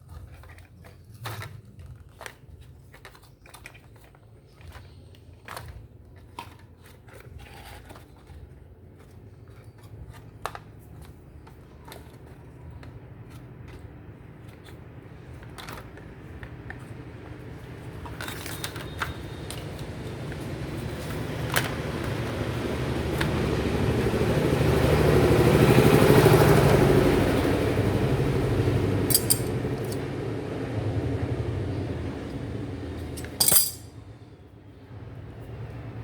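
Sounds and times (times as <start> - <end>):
low steady hum: 27.0 - 36.0
hands handling small parts: 29.1 - 30.0, 33.0 - 33.9.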